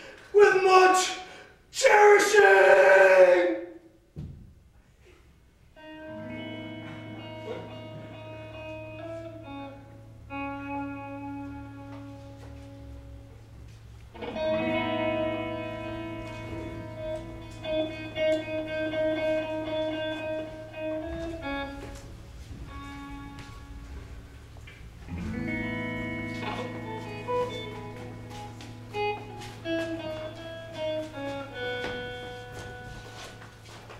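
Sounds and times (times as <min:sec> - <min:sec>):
electric guitar chords: 0:05.8 - 0:33.9
low held note: 0:06.0 - 0:13.6, 0:14.2 - 0:33.1.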